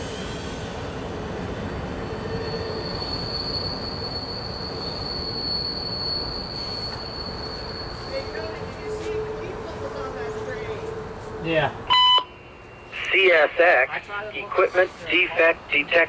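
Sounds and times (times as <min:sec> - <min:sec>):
high wheel squeal: 0:00.0 - 0:09.6
freight train rumbling on track: 0:00.0 - 0:12.9.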